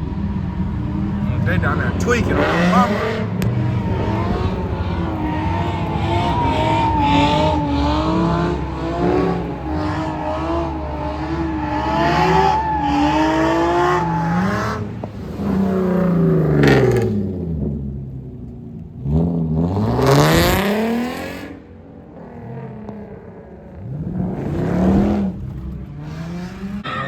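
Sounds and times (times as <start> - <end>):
tires squealing: 0.0 - 17.4, 23.8 - 27.0
car engines revving: 0.0 - 27.0.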